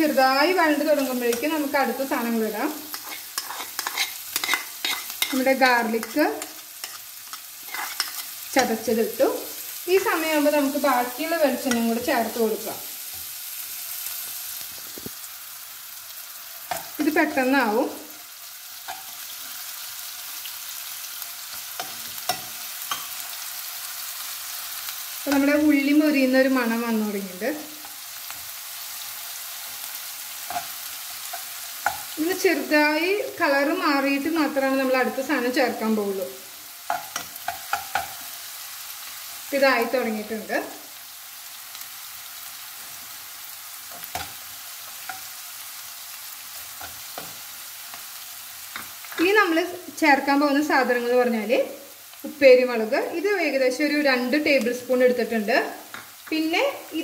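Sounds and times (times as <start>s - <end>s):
shallots and garlic sizzling in oil: 0.0s - 57.0s
steel spoon clicking on pan: 2.9s - 5.4s, 30.5s - 32.2s, 36.9s - 38.3s.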